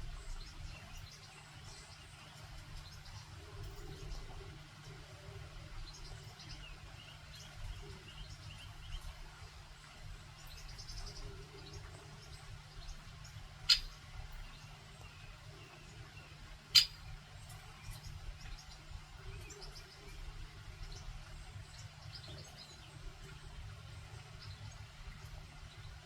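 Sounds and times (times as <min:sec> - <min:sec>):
low steady background rumble: 0:00.0 - 0:26.0
faint high bird chirps: 0:13.6 - 0:20.3.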